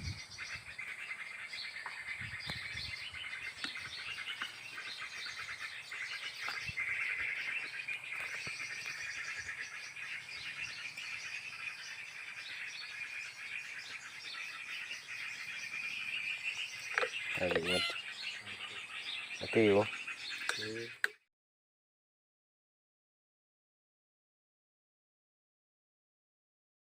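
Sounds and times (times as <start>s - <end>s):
small birds twittering: 0.0s - 21.3s.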